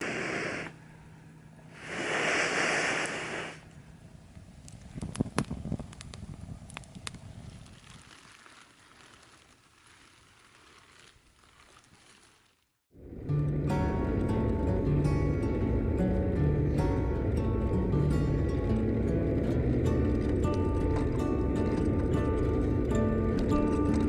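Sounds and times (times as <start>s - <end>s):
fire popping sharply: 0.0s - 0.8s, 1.8s - 3.6s
loud rushing hisses: 0.0s - 0.8s, 1.7s - 3.7s
campfire crackling: 0.0s - 0.9s, 1.7s - 24.0s.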